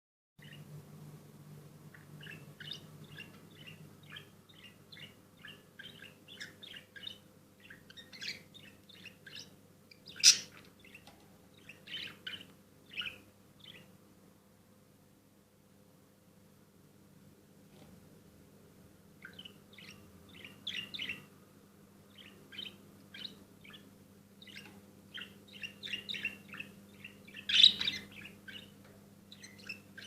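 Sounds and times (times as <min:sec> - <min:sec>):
small bird chirping: 0:00.4 - 0:00.8, 0:01.8 - 0:14.0, 0:19.1 - 0:30.0
faint steady hum: 0:00.4 - 0:30.0.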